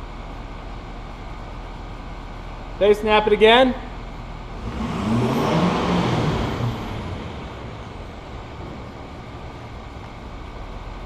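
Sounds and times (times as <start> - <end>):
diesel engine revving: 4.3 - 11.0.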